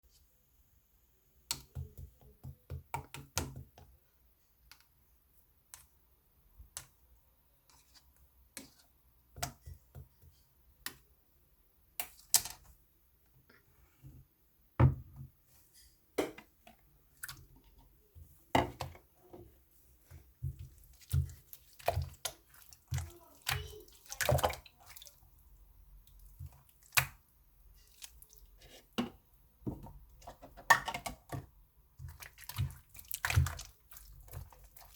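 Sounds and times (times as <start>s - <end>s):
slime squished by hand: 32.0s - 34.9s.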